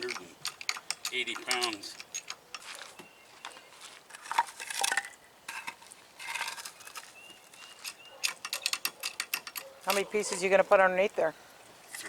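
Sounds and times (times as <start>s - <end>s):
light metallic clinks: 0.0s - 2.7s.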